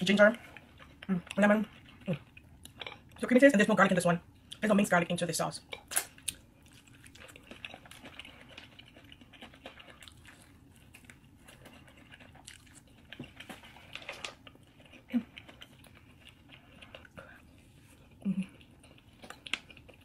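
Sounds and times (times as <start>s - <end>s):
person chewing: 5.7s - 20.0s.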